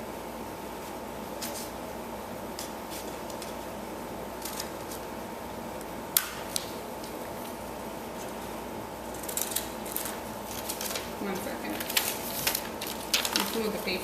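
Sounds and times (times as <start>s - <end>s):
steady background hum: 0.0s - 14.0s
scissors cutting paper: 9.1s - 13.8s.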